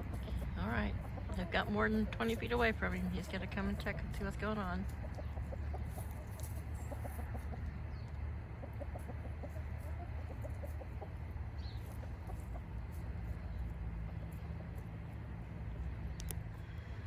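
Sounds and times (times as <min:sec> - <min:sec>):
chickens clucking softly: 0:00.0 - 0:16.7.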